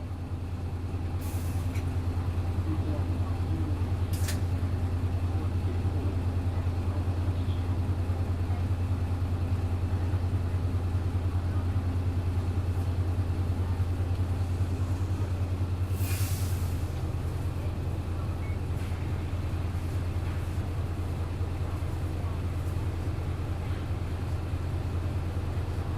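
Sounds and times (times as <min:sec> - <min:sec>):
bus diesel engine idling: 0:00.0 - 0:25.9
compressed air hiss: 0:16.0 - 0:16.8.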